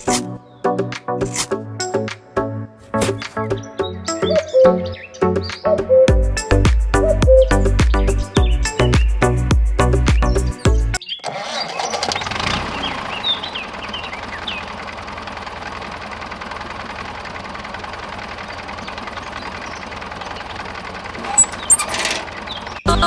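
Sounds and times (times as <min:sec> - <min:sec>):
engine starting and running: 0:11.0 - 0:23.0.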